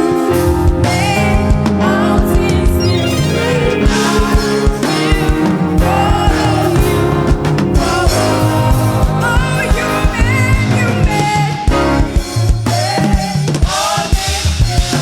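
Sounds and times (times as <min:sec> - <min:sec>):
bass: 0:00.0 - 0:15.0
drum beat: 0:00.0 - 0:15.0
gospel choir singing: 0:00.0 - 0:15.0.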